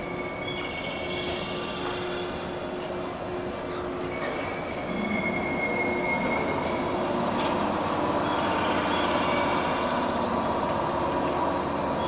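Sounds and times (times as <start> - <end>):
train running and braking: 0.0 - 12.0
thin high squeal: 4.2 - 6.8.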